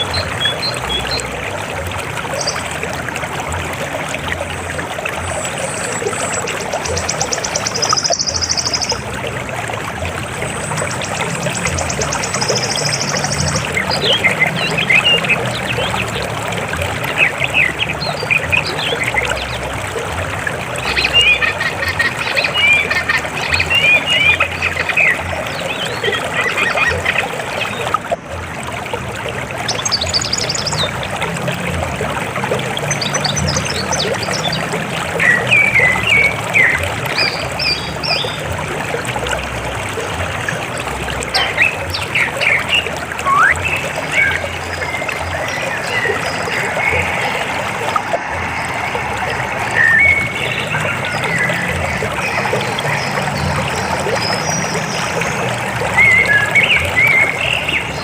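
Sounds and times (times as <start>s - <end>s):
river water flowing: 0.0s - 58.0s
birds chirping: 4.0s - 9.2s, 10.3s - 20.0s, 20.8s - 28.0s, 40.5s - 58.0s.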